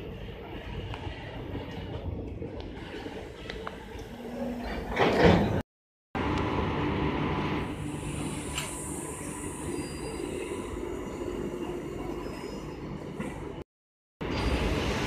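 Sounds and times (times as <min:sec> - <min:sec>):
train coaches rolling past: 0:14.2 - 0:15.0.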